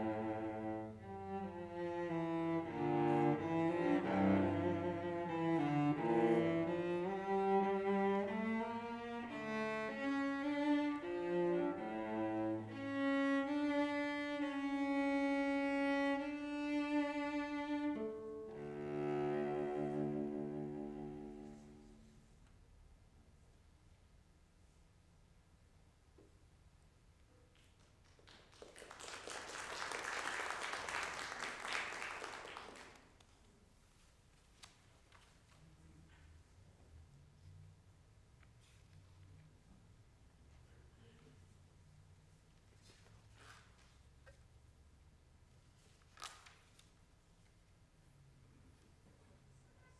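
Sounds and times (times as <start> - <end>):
slow bowed cello music: 0.0 - 22.4
congregation applauding: 28.0 - 33.2.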